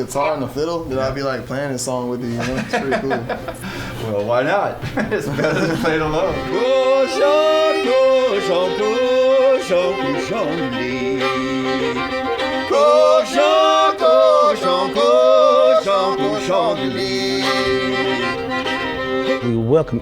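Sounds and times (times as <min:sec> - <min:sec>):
fiddle melody: 0:05.3 - 0:20.0.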